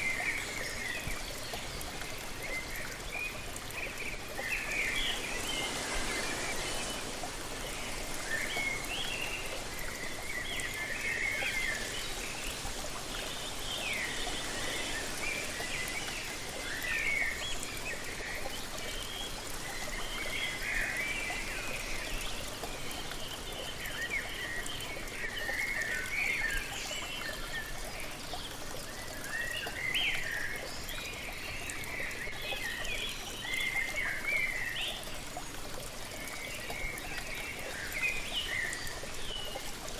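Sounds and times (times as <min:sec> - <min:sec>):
waterfall rushing: 0:03.9 - 0:18.4.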